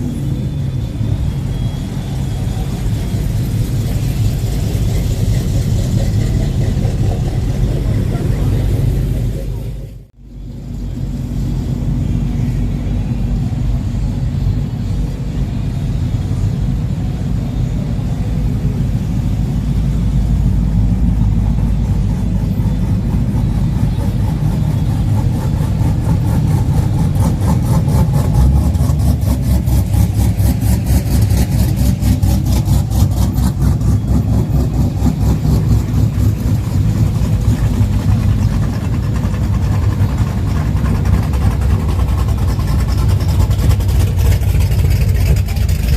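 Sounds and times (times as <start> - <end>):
truck engine idling: 0.0 - 45.9.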